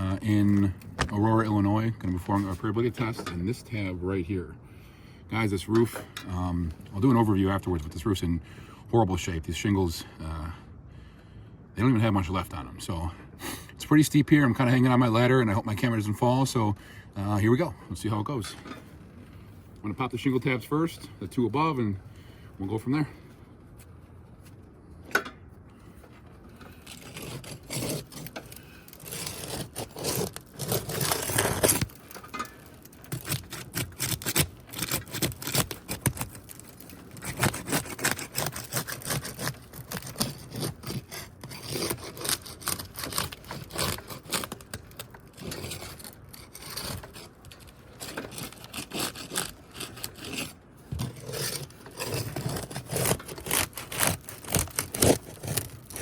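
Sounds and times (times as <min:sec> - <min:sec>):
roof shingles being pried up: 0:25.1 - 0:56.0.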